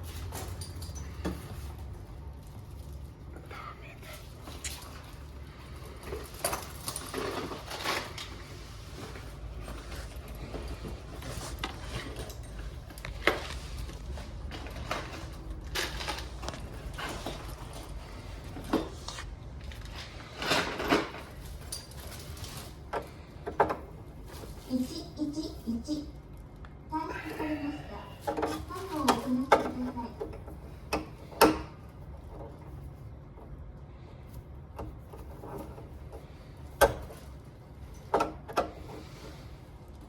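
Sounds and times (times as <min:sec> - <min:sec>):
tools and parts clinking: 0:00.0 - 0:03.1, 0:05.9 - 0:08.4, 0:09.6 - 0:18.9, 0:19.7 - 0:24.4
low steady hum: 0:00.0 - 0:40.0.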